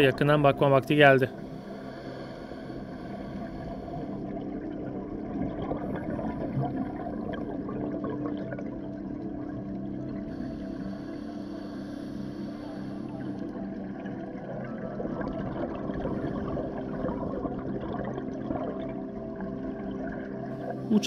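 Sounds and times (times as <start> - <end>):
low hum: 0.0 - 21.0
muffled underwater rush: 0.0 - 21.0.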